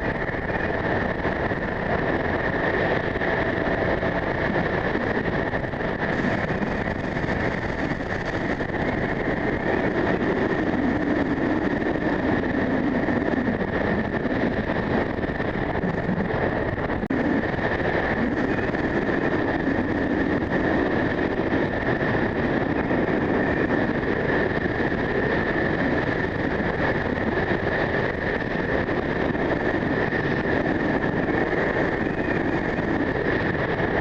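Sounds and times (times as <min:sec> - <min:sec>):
strong wind buffeting microphone: 0:00.0 - 0:34.0.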